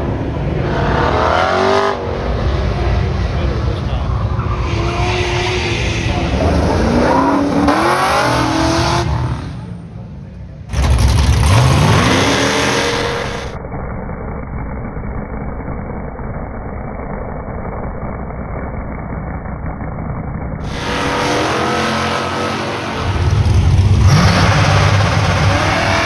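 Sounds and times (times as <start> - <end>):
race car engines revving: 0.0 - 13.6, 20.6 - 26.0
steady engine drone: 0.0 - 26.0.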